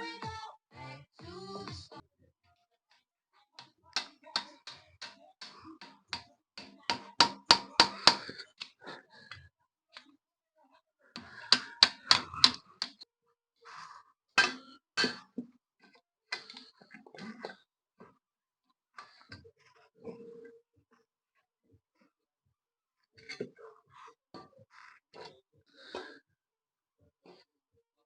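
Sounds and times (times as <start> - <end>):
hand tools clicking and knocking: 3.6 - 8.7, 11.2 - 13.0, 14.4 - 15.4.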